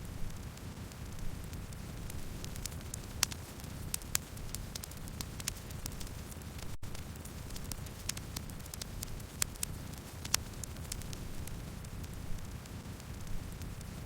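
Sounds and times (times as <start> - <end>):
low rumble of flames: 0.0 - 14.0
wood crackling and popping: 0.0 - 14.0.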